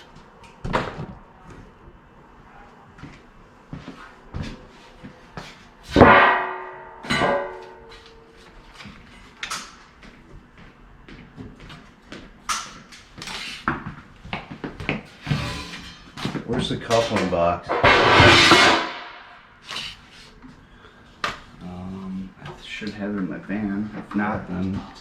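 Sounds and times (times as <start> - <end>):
knocks and clicks of sheet metal: 6.0 - 8.0, 15.2 - 19.3
loud metal clangs: 6.0 - 8.1, 15.1 - 19.4.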